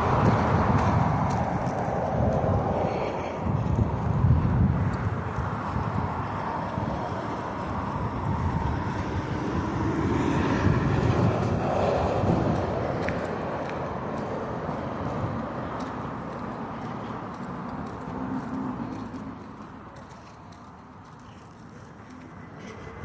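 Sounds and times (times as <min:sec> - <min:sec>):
vehicle passing: 0:00.0 - 0:23.0.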